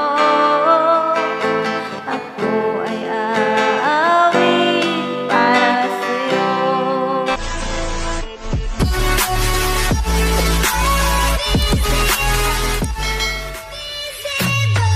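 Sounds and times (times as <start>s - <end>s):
person singing worship song: 0.0s - 7.4s
acoustic guitar chords: 0.0s - 14.9s.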